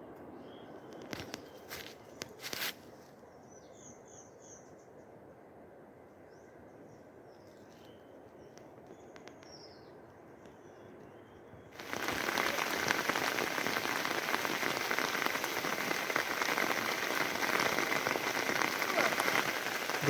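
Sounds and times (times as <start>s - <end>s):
faint outdoor hiss: 0.0s - 20.0s
small birds chirping: 6.3s - 20.0s.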